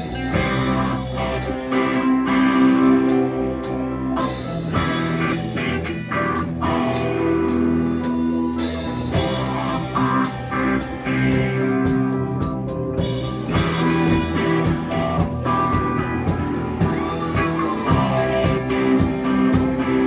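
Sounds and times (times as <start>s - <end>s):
drum kit beat: 0.0s - 3.2s, 4.2s - 20.0s
electric guitar sustained notes: 0.0s - 20.0s.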